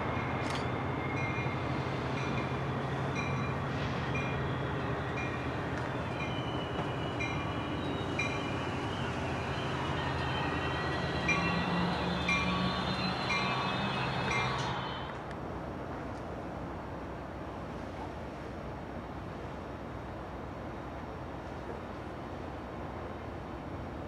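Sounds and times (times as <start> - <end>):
train bell dinging: 0.0 - 15.1
diesel locomotive engine droning: 0.0 - 24.0.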